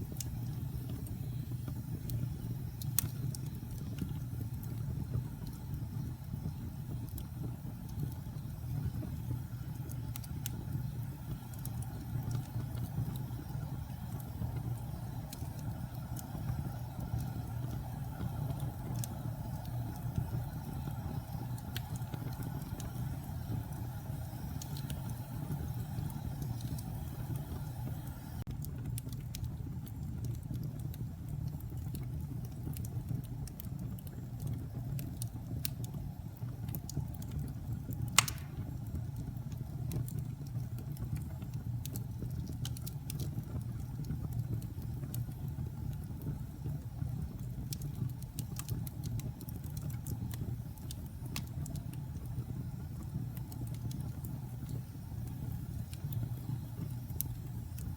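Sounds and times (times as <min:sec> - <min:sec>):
wood fire crackling: 0:00.0 - 0:57.9
loud pop of fire: 0:38.2 - 0:38.8.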